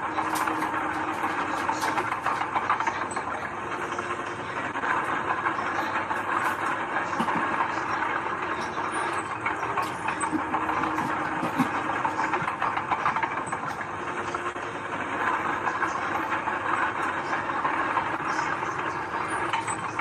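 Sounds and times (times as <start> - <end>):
heavy machinery engine: 0.0 - 20.0.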